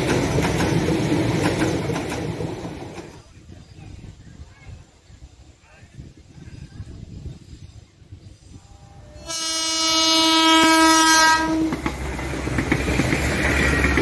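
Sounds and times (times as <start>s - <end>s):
clattering train wheels: 0.0s - 3.9s, 10.6s - 14.0s
train passing with heavy rumble: 0.0s - 14.0s
train horn blast: 8.6s - 11.9s.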